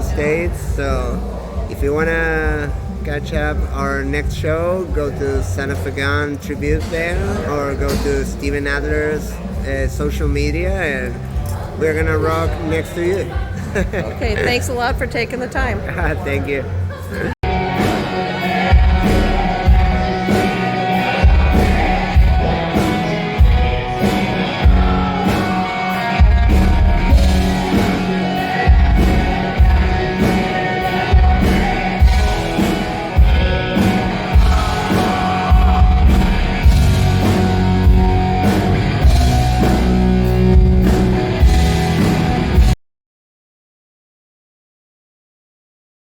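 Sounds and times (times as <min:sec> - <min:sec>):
heavy drum beat: 0:17.4 - 0:42.8
rock music: 0:17.4 - 0:42.8
person singing: 0:17.5 - 0:41.0.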